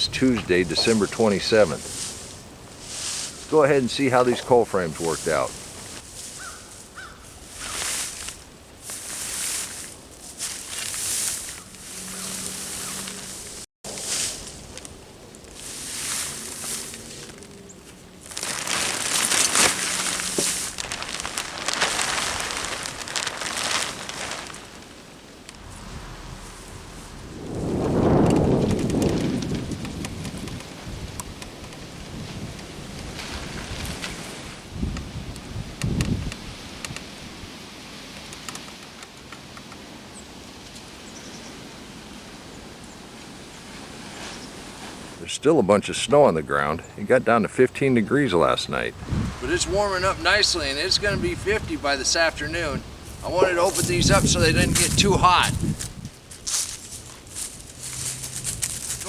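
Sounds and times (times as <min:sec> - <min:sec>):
light rustling: 0:00.0 - 0:37.2, 0:49.0 - 0:59.0
steady outdoor hiss: 0:00.0 - 0:59.0
plastic cover crinkling: 0:15.5 - 0:27.0, 0:49.4 - 0:59.0.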